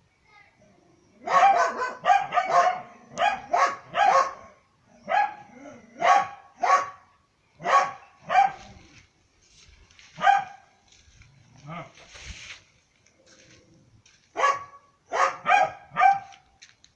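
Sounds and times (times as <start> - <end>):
dog barking: 1.2 - 8.8, 10.2 - 10.7, 14.4 - 16.4.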